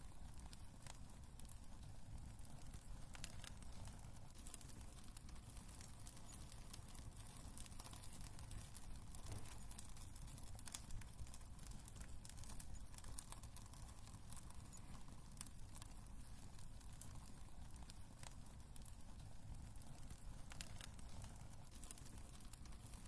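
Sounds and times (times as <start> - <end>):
fire rumbling in fireplace: 0.0 - 23.0
logs popping and crackling: 0.0 - 23.0.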